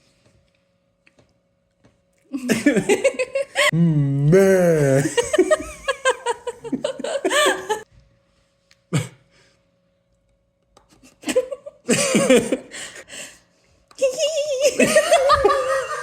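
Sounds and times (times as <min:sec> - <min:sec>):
person laughing: 0:02.3 - 0:07.8, 0:11.0 - 0:13.1, 0:14.0 - 0:16.0
short vocal noises: 0:03.8 - 0:05.0.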